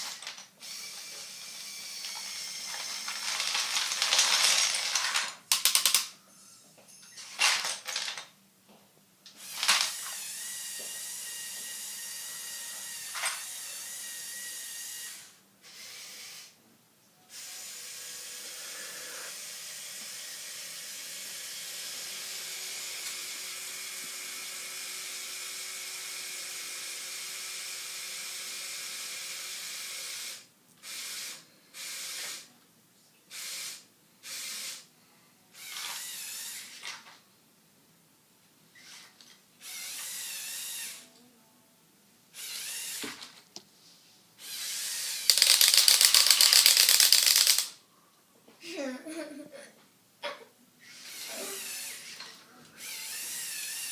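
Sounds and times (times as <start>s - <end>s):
toy electric motors whining: 0.0s - 6.1s, 9.3s - 16.6s, 17.3s - 32.5s, 33.3s - 34.9s, 35.5s - 37.0s, 38.8s - 41.1s, 42.3s - 43.3s, 44.4s - 47.8s, 50.8s - 53.9s.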